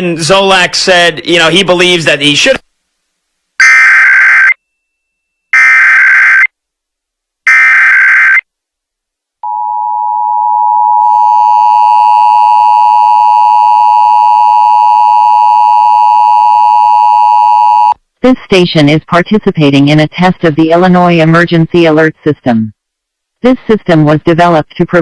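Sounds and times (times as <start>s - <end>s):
loud steady alert tone: 3.6s - 4.6s, 5.6s - 6.5s, 7.5s - 8.4s.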